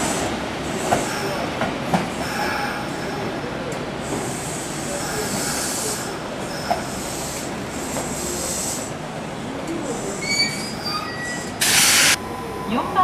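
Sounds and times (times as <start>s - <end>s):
electric train rumble: 0.0s - 13.0s
high wheel squeals: 10.0s - 11.6s
short loud hiss: 11.6s - 12.2s.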